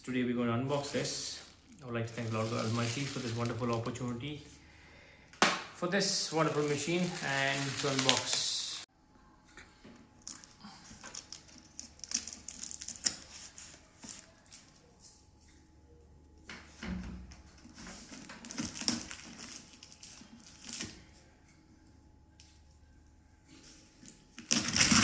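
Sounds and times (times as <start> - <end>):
cardboard rustling and crinkling: 0.7 - 4.4, 6.2 - 8.8, 17.6 - 21.1, 24.1 - 25.0.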